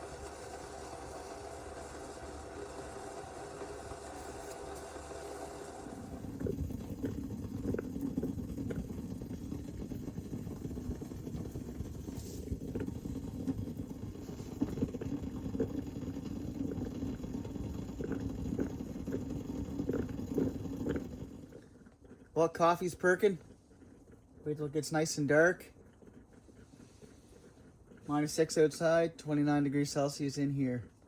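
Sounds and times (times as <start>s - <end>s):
coffee percolator bubbling: 0.0s - 31.0s.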